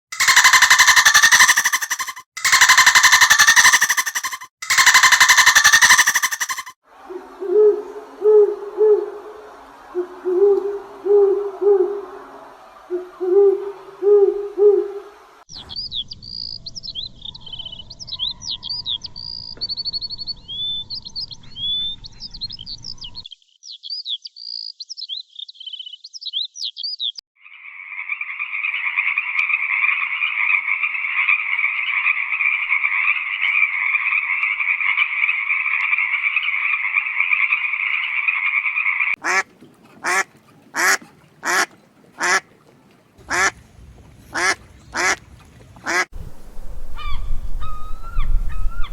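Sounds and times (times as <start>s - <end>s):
frogs croaking: 0.1s - 6.8s, 27.4s - 42.6s, 43.2s - 43.6s, 44.3s - 46.1s
small bird chirping: 0.2s - 6.7s, 15.6s - 27.2s
owl hooting: 0.2s - 9.3s.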